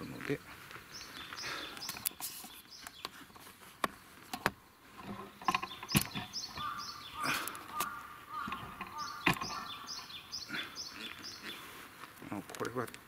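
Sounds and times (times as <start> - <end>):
small birds chirping: 0.0 - 13.0
sharp clicks and knocks: 3.8 - 6.8, 7.4 - 9.7.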